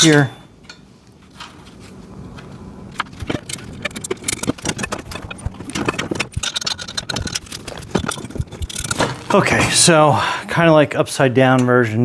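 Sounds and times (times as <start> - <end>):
steel parts clinking and rattling: 2.9 - 9.6.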